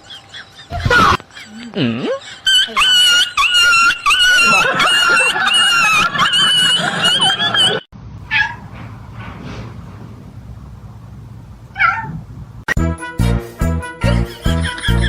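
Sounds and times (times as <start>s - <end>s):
cat yowling: 8.3s - 8.6s, 11.8s - 12.2s
cat meowing: 11.8s - 12.2s.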